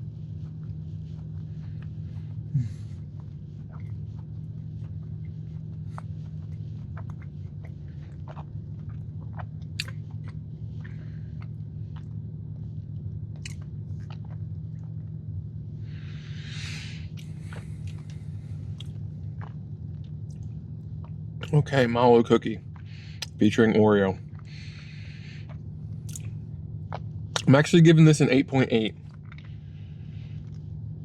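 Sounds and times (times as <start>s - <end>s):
close chewing of soft cookie: 0.0s - 31.0s
steady low hum: 0.0s - 31.0s
wet mouth clicks: 6.5s - 12.1s, 16.4s - 19.6s, 22.8s - 23.4s, 26.0s - 27.6s.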